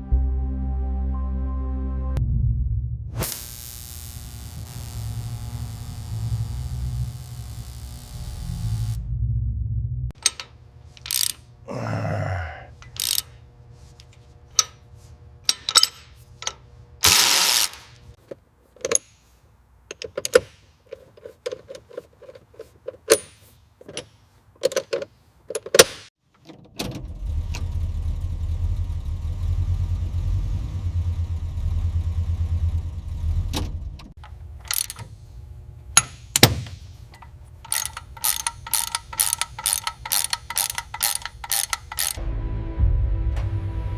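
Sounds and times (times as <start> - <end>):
motor-driven tool running: 3.3 - 9.0, 10.2 - 11.8, 12.7 - 18.2, 34.2 - 42.2
metal clicks and knocks: 10.2 - 11.4, 15.5 - 16.6, 18.2 - 19.2, 19.9 - 27.0, 34.0 - 35.2, 36.0 - 42.2
ratchet clicking: 10.2 - 11.5, 12.8 - 13.4, 15.5 - 18.0, 34.2 - 35.2, 36.0 - 42.2
short hissing burst: 17.0 - 18.0.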